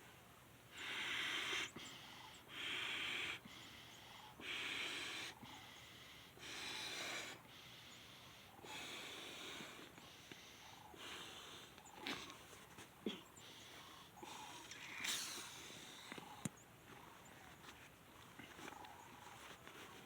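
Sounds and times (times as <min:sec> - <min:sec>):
person breathing: 0:00.7 - 0:12.7.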